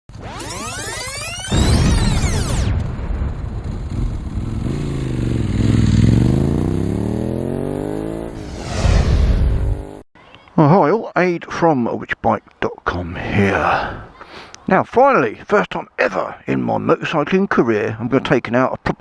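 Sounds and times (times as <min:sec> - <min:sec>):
motorcycle engine accelerating: 0:03.2 - 0:10.0
loud low rumble: 0:08.4 - 0:09.8.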